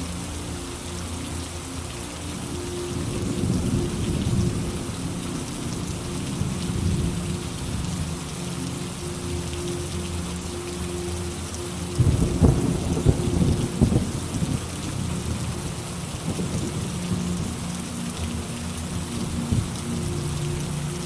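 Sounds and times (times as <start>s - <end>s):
steady rain: 0.0s - 21.0s
thunderclap rumbling: 12.0s - 14.7s.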